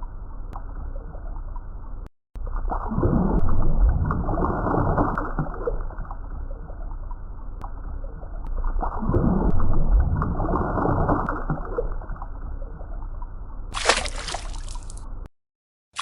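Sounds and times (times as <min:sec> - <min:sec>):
muffled water sloshing: 0:03.4 - 0:15.3.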